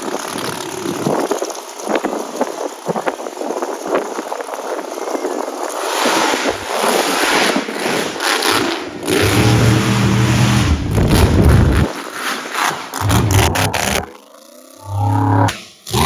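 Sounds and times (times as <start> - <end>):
truck engine revving: 5.9 - 16.0.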